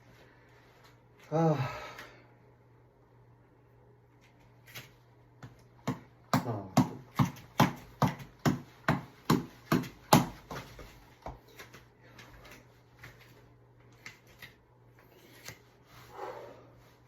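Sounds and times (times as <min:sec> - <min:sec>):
fists striking reflex ball: 0:05.8 - 0:10.9.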